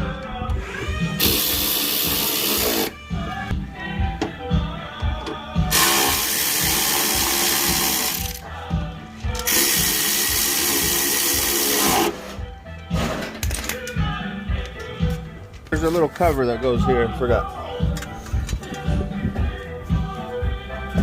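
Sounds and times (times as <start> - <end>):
music with steady beat: 0.0 - 21.0
power drill running: 0.6 - 3.0, 5.7 - 8.4, 9.5 - 12.2.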